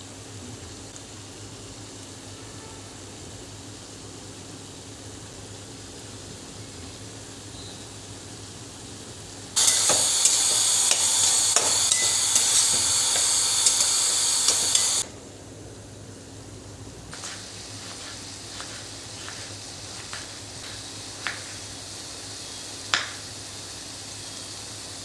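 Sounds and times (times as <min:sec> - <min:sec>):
food sizzling in a pan: 0:00.9 - 0:15.0, 0:17.1 - 0:25.0
spoon stirring and tapping pan: 0:09.6 - 0:15.0.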